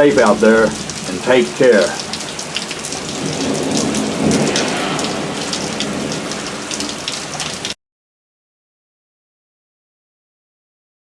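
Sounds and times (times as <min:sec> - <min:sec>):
heavy rain pouring: 0:00.0 - 0:07.8
raindrops ticking close by: 0:00.0 - 0:07.8.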